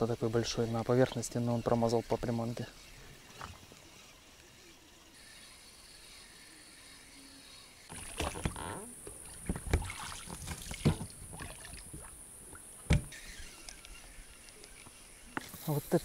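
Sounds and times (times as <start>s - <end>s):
oars knocking against boat: 8.1s - 11.5s.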